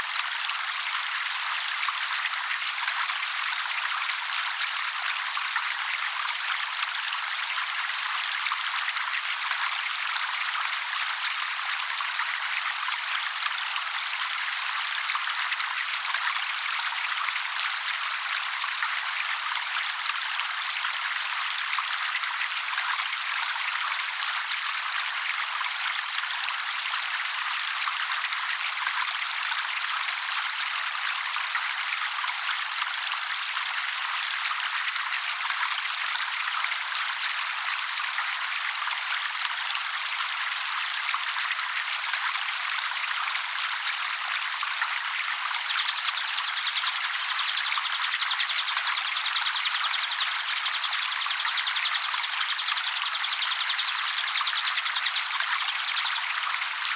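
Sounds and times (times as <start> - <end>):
water trickling: 45.7 - 56.2.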